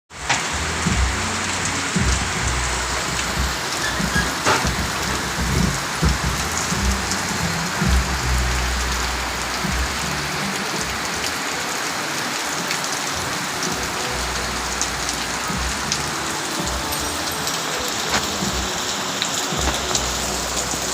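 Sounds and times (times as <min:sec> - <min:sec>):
rain pattering on surfaces: 0:00.1 - 0:20.9.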